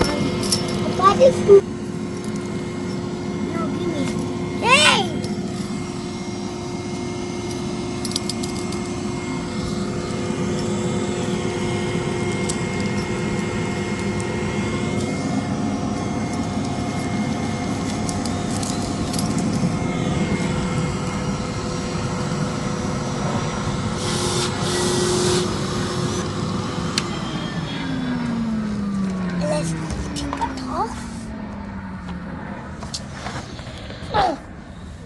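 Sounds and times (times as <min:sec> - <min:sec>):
vacuum cleaner motor whining: 0:00.0 - 0:34.9.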